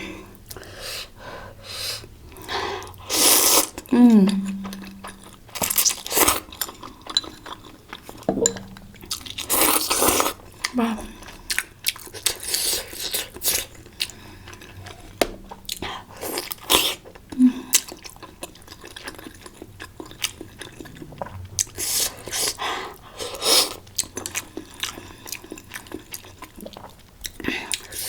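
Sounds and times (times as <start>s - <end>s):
close chewing and biting food: 3.6s - 8.3s, 9.0s - 28.0s.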